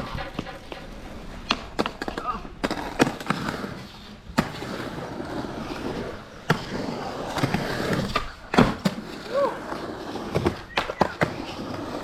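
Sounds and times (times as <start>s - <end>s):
skateboard clacks: 0.0s - 5.0s, 5.6s - 12.0s
skateboard wheels rumbling: 0.0s - 12.0s.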